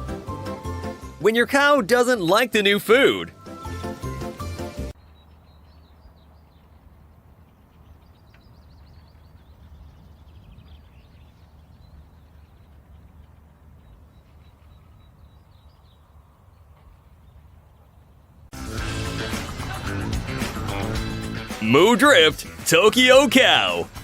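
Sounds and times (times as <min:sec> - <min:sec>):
small birds chirping: 0:04.9 - 0:18.5.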